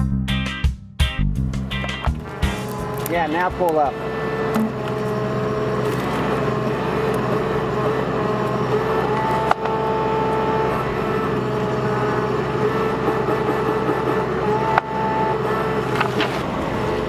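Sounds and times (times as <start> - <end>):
high whine: 0.0 - 13.0
excavator diesel engine running: 1.7 - 17.0.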